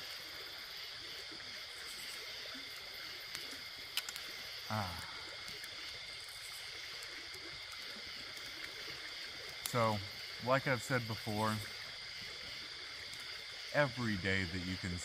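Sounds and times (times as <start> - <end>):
faint river flow: 0.0 - 15.0
night insects chirring: 0.0 - 15.0
low falling voice sound: 4.7 - 5.3.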